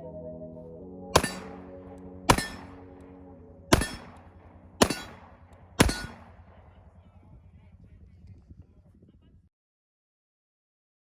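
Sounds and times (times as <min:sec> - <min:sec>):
quiet background music: 0:00.0 - 0:08.0
gunshots with echo: 0:01.2 - 0:07.2.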